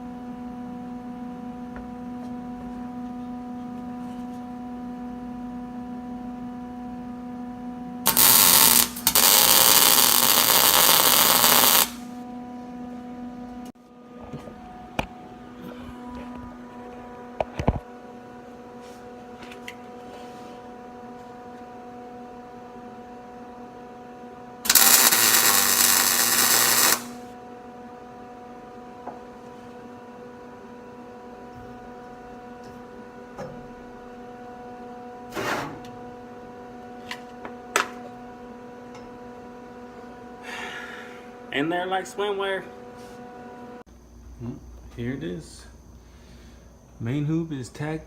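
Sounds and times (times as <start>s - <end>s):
steady electrical hum: 0.0s - 35.2s, 36.0s - 48.0s
welding arc crackling: 8.1s - 12.1s, 24.6s - 27.3s.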